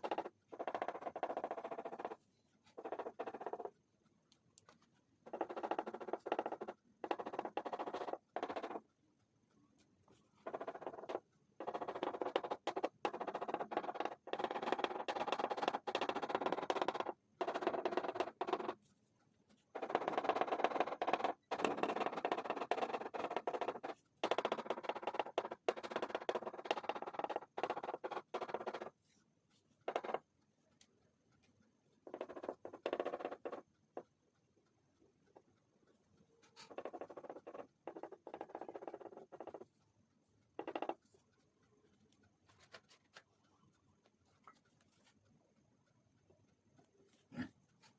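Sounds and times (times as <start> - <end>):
pastel scratching on paper: 0.0 - 3.7, 36.4 - 39.6.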